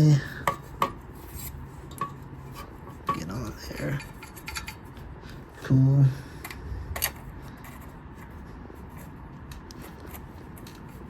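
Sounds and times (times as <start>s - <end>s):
small clicks and handling noises: 8.9s - 11.0s.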